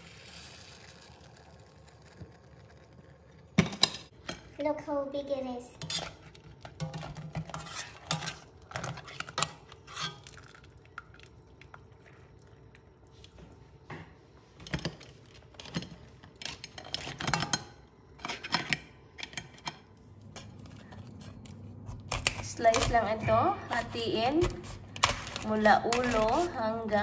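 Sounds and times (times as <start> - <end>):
metal tongs clattering on pot: 25.0 - 27.0.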